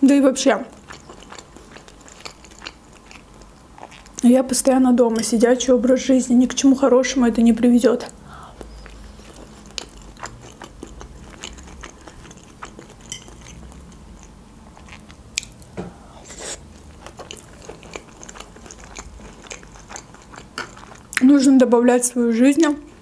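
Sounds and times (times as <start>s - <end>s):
moist chewing clicks and smacks: 0.8s - 4.2s, 8.6s - 15.8s, 17.0s - 21.3s.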